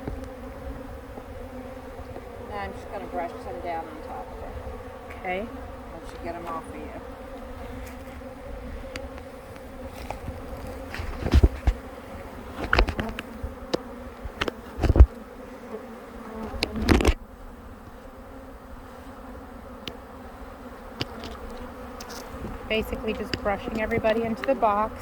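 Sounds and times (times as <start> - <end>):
bee swarm buzzing: 0.0 - 25.0
rustles and knocks: 9.9 - 11.8, 12.6 - 15.2.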